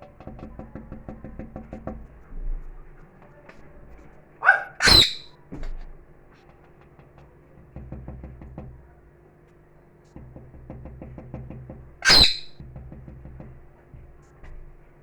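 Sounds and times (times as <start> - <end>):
parrot squawking: 4.4 - 5.3, 12.0 - 12.6.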